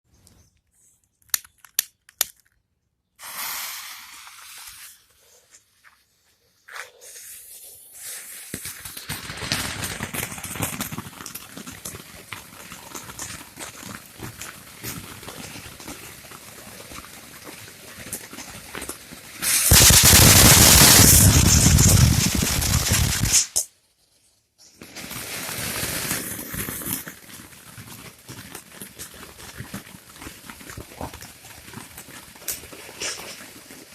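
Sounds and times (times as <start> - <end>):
sharp clicks: 0.2 - 2.6
firework crackling and hissing: 3.2 - 5.8, 7.0 - 23.7, 24.8 - 27.5, 30.7 - 33.9.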